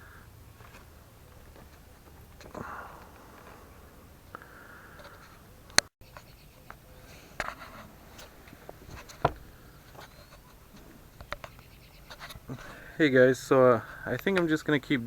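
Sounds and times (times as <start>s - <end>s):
sharp clicks and knocks: 5.0s - 12.7s.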